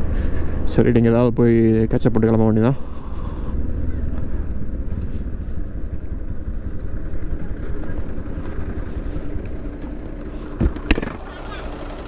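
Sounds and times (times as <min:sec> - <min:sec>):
motorcycle engine low rumble: 0:00.0 - 0:12.0.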